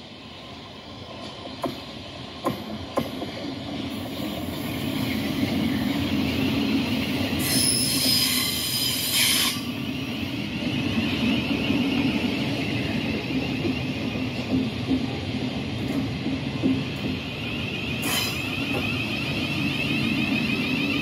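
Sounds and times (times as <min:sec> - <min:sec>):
train wheels rumbling on rails: 0:00.0 - 0:21.0
train wheels squealing: 0:03.9 - 0:14.4, 0:17.1 - 0:21.0.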